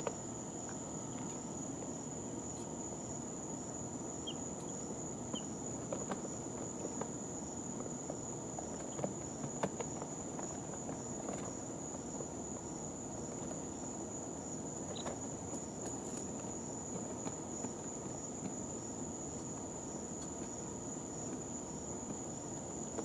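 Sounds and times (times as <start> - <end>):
chick peeps: 4.2 - 5.5.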